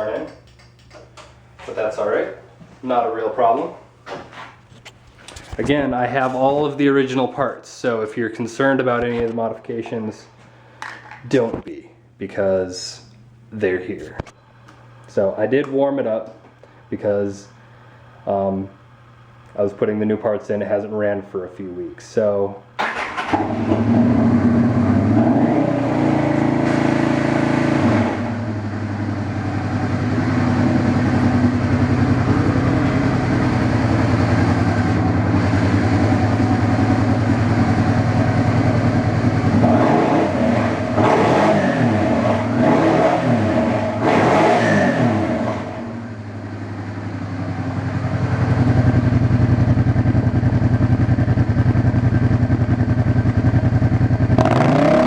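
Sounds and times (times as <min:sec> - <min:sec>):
motorcycle engine idling and revving: 0:23.2 - 0:55.0.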